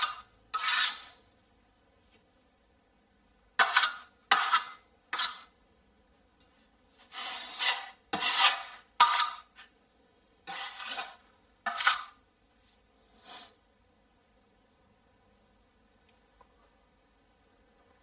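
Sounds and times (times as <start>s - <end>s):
putty knife scraping compound: 0.0s - 1.2s, 3.6s - 5.6s, 7.0s - 9.8s, 10.4s - 12.2s.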